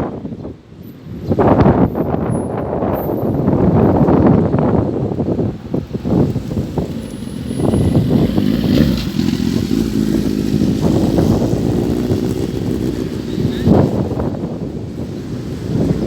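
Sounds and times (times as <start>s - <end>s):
vehicle engine running: 5.7s - 16.0s.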